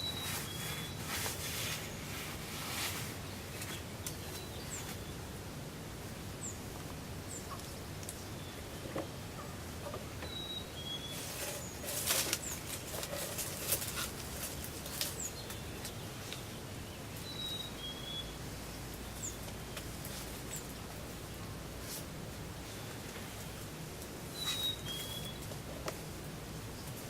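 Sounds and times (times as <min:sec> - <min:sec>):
rustling: 0:00.0 - 0:05.1, 0:11.0 - 0:16.5, 0:19.4 - 0:26.1
small birds chirping: 0:00.0 - 0:05.4, 0:06.4 - 0:21.5, 0:22.5 - 0:27.0.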